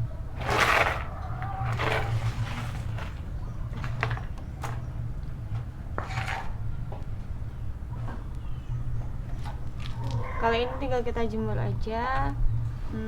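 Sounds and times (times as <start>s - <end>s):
scraping swishes: 0.4s - 3.3s.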